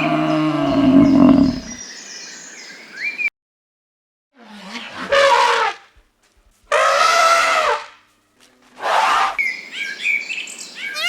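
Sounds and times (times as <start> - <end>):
farm animal harsh cries: 0.0 - 1.8, 6.7 - 7.9
small birds chirping: 0.0 - 3.2.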